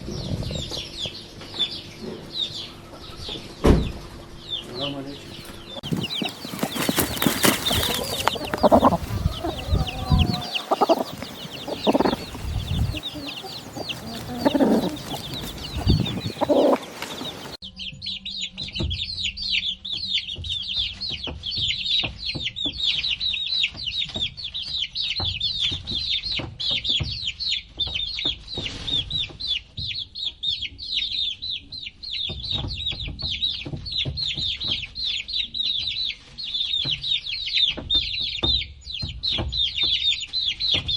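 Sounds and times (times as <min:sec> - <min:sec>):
chickens clucking: 0:00.0 - 0:17.6, 0:20.2 - 0:40.9
chicks peeping: 0:00.0 - 0:40.9.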